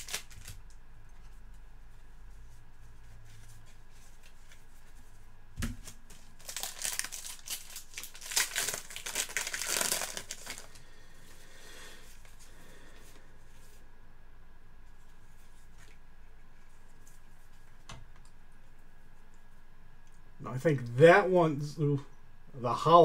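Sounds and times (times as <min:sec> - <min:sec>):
plastic wrapper crinkling: 0:00.0 - 0:00.7, 0:05.8 - 0:10.8.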